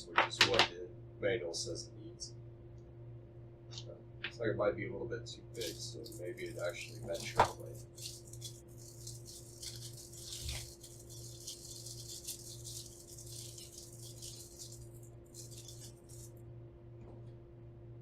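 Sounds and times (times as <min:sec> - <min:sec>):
batteries clicking and rattling: 0:05.6 - 0:16.3.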